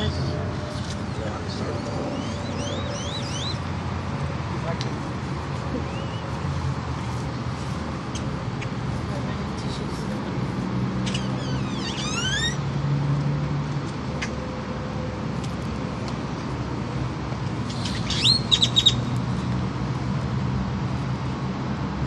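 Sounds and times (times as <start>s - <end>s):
birds chirping: 0.0s - 3.8s, 17.8s - 19.1s
low hum of traffic: 0.0s - 22.0s.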